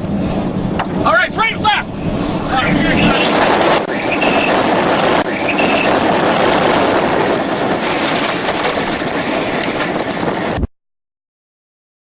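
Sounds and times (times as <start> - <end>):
loud rush of wind: 0.0 - 10.7
debris rattling on vehicle: 2.6 - 10.6.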